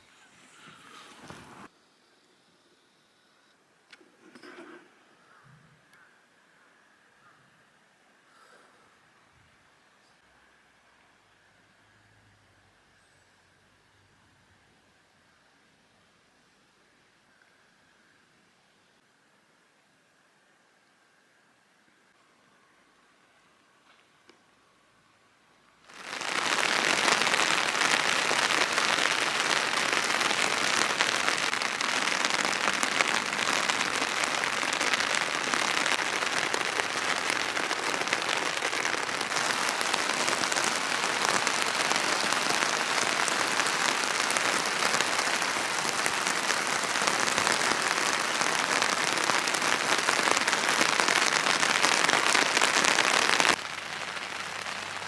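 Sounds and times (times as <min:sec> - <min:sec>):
steady rain hissing: 0:00.0 - 0:01.7, 0:25.8 - 0:55.0.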